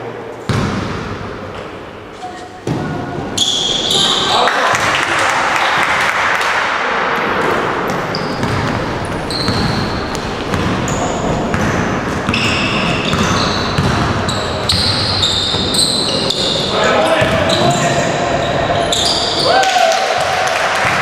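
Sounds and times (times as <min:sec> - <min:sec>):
basketball bouncing: 0:00.5 - 0:01.2, 0:07.9 - 0:15.8
players talking and calling out: 0:01.8 - 0:20.4
sneakers squeaking on court: 0:02.2 - 0:04.9, 0:07.8 - 0:19.4.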